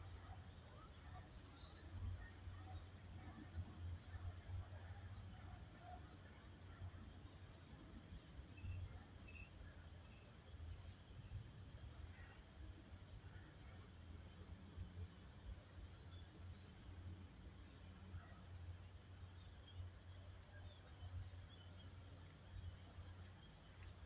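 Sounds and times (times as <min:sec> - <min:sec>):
faint bird chirps: 0:00.2 - 0:02.9.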